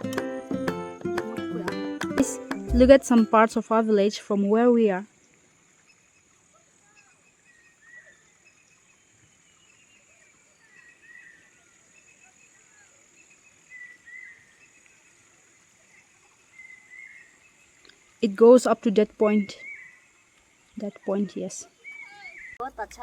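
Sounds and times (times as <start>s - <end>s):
high insect hum: 5.0s - 22.5s.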